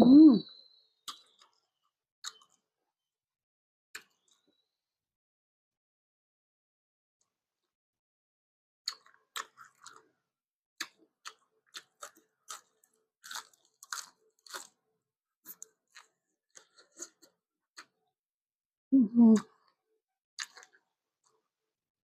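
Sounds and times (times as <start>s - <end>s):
close-miked chewing: 8.8s - 10.2s, 10.8s - 14.8s, 15.4s - 18.0s, 20.4s - 21.4s.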